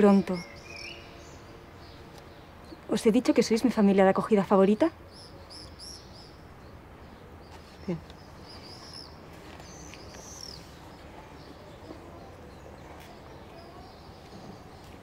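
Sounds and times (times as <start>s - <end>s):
faint outdoor background noise: 0.0s - 15.0s
high bird chirps: 7.4s - 12.6s.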